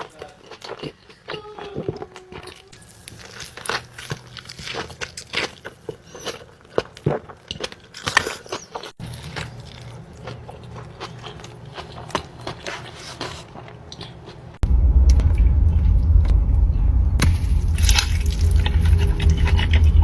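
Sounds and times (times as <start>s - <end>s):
crisp bites and wet chewing: 0.0s - 14.4s
low hum: 14.6s - 20.0s.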